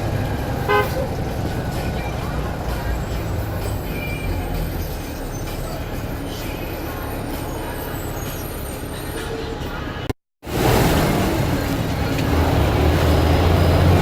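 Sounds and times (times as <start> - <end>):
bus engine rumbling: 0.0 - 14.0
street traffic: 0.0 - 14.0.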